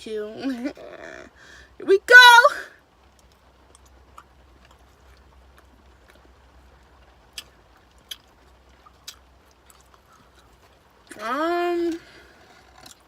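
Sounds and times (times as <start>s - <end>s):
person chewing: 3.1s - 11.1s, 11.9s - 13.0s.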